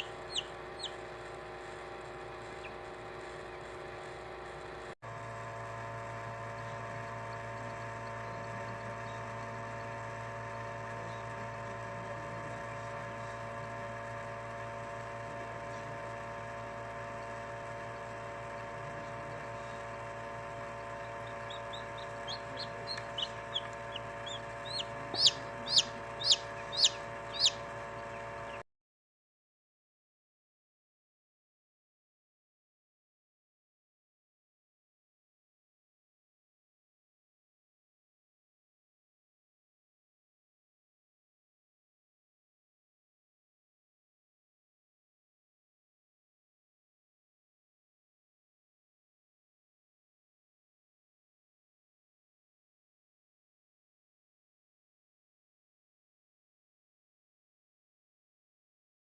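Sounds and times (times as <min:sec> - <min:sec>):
chicks peeping: 0:00.0 - 0:01.0, 0:02.4 - 0:02.9, 0:06.6 - 0:09.4, 0:20.9 - 0:28.6
incubator hum: 0:00.0 - 0:28.6.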